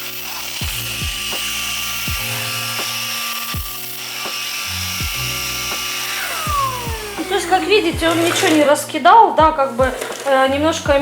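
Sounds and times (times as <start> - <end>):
vacuum cleaner hiss and whine: 0.0 - 8.7
background music with bass: 0.0 - 11.0.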